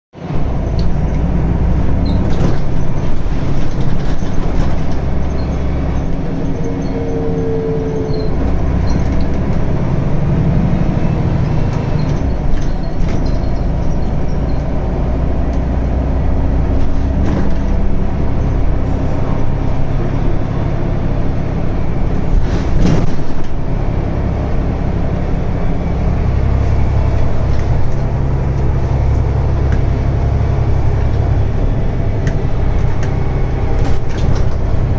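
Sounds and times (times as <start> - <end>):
bus diesel engine running: 0.1 - 34.9
short falling squeal: 6.5 - 9.2.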